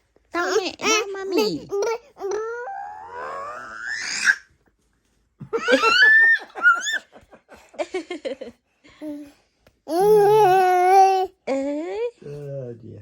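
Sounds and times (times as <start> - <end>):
baby vocal sounds: 0.4 - 4.5, 9.0 - 11.6
baby squealing: 2.2 - 4.5, 5.6 - 7.1
baby giggling laughter: 5.6 - 7.1.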